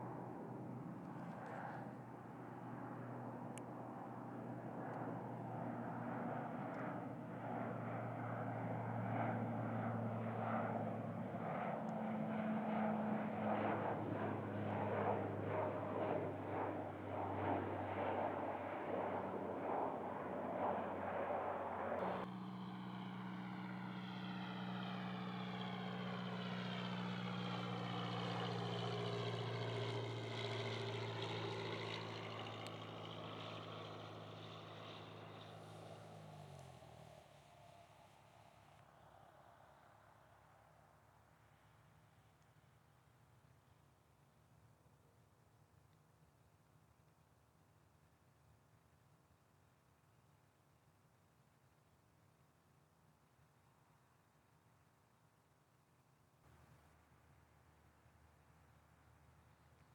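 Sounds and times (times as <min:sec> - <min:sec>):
airplane engine rumble: 0:12.0 - 0:37.8.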